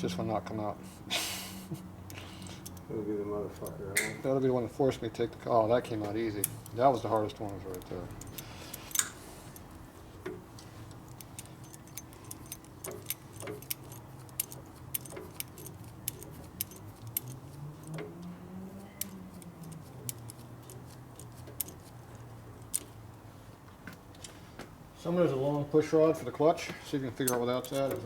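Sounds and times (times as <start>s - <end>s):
small metal tools clinking: 2.4s - 2.9s, 6.2s - 9.7s, 10.7s - 23.0s, 27.1s - 28.0s.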